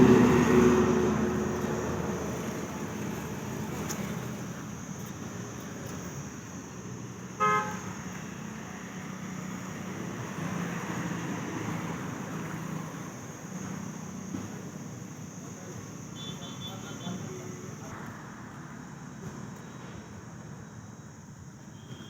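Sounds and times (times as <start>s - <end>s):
diesel tractor engine running: 0.0s - 7.2s
tractor horn beep: 7.4s - 7.9s, 16.2s - 17.2s.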